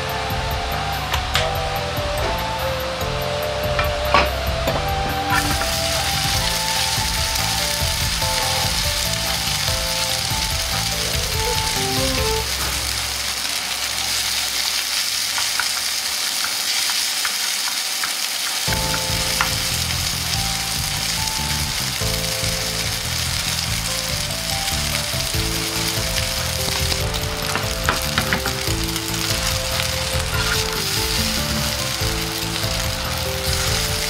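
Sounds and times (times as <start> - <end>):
background music: 0.0 - 13.9, 18.7 - 34.0
noodles sizzling in oil: 2.2 - 34.0.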